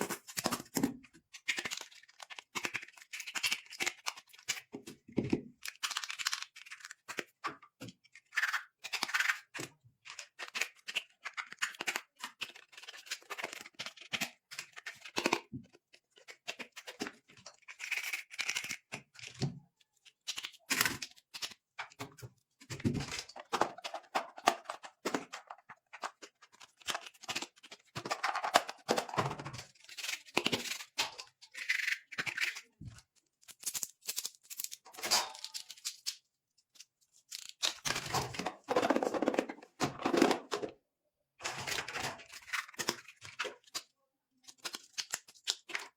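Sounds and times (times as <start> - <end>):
plastic and paper crinkling: 20.0 - 31.0, 32.4 - 40.7.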